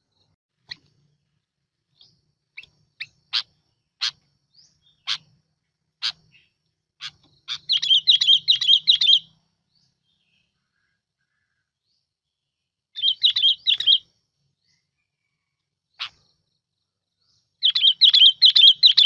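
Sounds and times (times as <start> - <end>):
bulbul calling: 1.9 - 11.6, 13.0 - 14.1, 15.9 - 16.3, 17.6 - 19.0.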